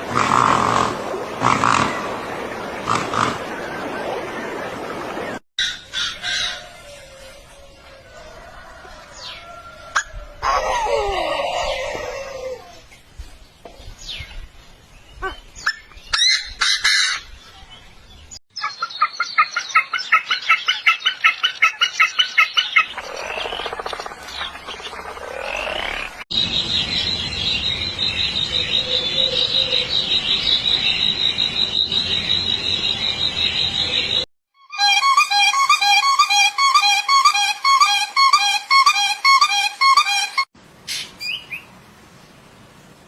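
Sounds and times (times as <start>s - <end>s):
bird high-pitched trill: 34.6s - 40.5s.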